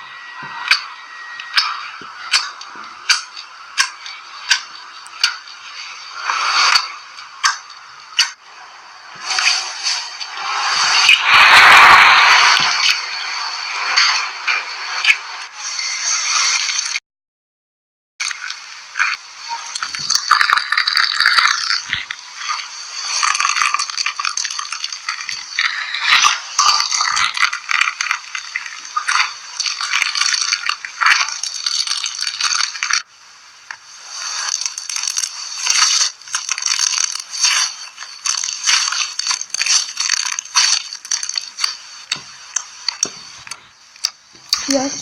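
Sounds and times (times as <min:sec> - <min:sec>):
slime crackling and popping: 0:18.2 - 0:44.9.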